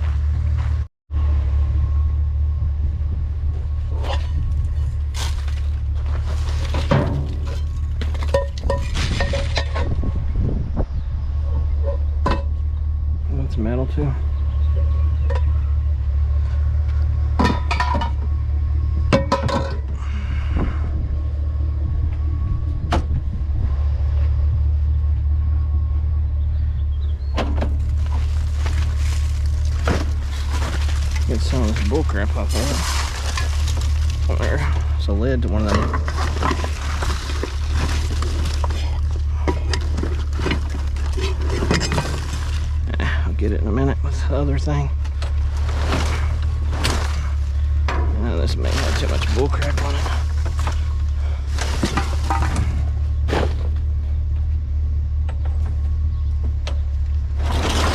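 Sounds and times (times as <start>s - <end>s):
steady low rumble: 0.0s - 57.9s
truck engine idling: 0.0s - 57.9s
short clatters and knocks: 35.6s - 43.0s, 45.0s - 53.9s.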